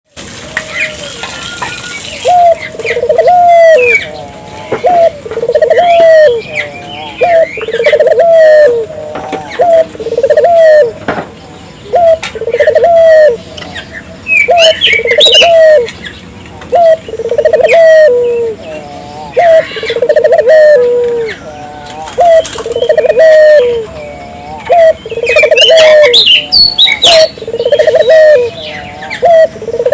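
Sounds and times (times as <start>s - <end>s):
doves cooing: 0.3s - 29.9s
small birds chirping: 0.3s - 29.9s.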